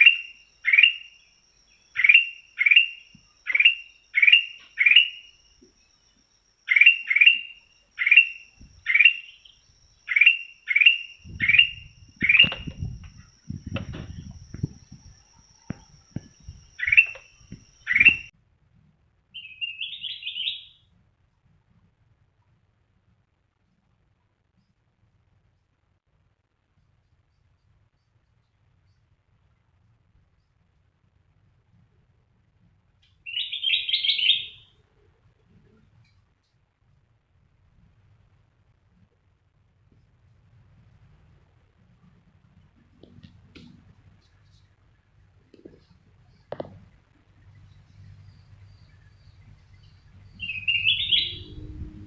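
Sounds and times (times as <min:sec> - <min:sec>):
faint high whine: 0:00.0 - 0:52.0
bulbul chirping: 0:01.9 - 0:05.4, 0:06.7 - 0:18.3, 0:45.6 - 0:51.6
low rumbling noise: 0:11.2 - 0:19.1, 0:40.4 - 0:52.0.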